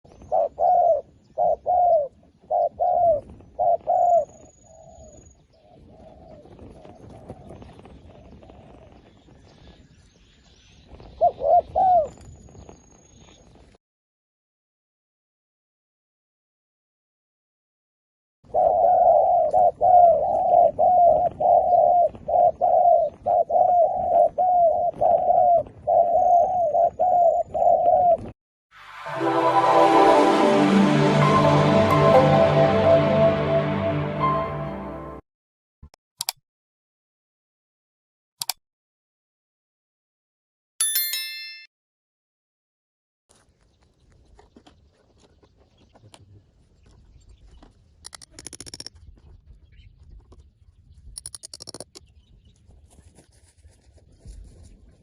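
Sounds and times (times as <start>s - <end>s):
dove cooing: 0.3s - 4.9s, 18.5s - 28.3s.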